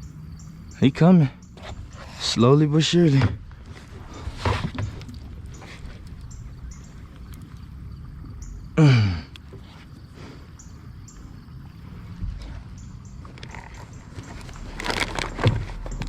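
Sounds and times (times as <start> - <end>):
man groaning: 8.8 - 9.3.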